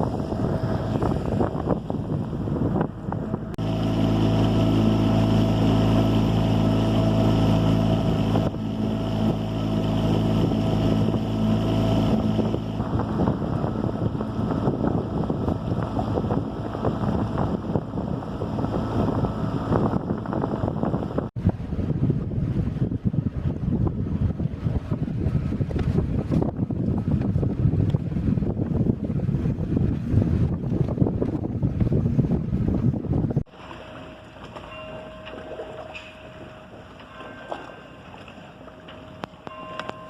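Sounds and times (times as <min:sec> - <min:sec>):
water rushing: 0:00.0 - 0:21.8, 0:33.5 - 0:40.0
boat engine running: 0:00.0 - 0:40.0
wind noise on microphone: 0:00.0 - 0:40.0.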